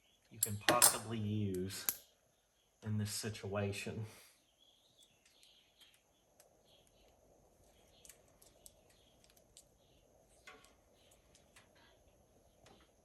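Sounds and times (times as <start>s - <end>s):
faint bird chirps: 4.2s - 13.0s.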